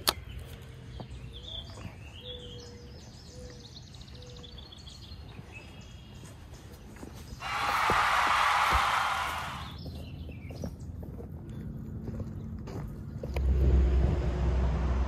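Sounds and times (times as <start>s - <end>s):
birds chirping: 0.0s - 13.3s
low outdoor rumble: 9.8s - 15.0s.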